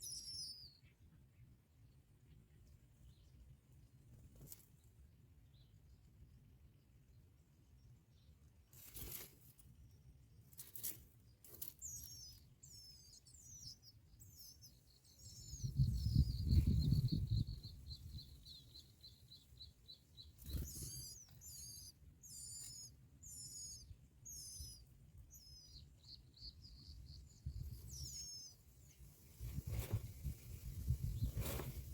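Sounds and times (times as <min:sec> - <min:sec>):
birds chirping: 0:00.0 - 0:03.4, 0:11.6 - 0:31.9.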